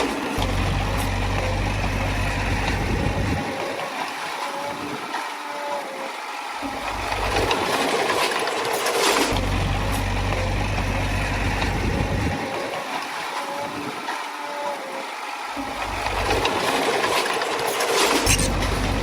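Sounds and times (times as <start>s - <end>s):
diesel engine rumbling: 0.0s - 3.5s, 9.3s - 12.6s, 15.7s - 16.8s, 18.2s - 19.0s.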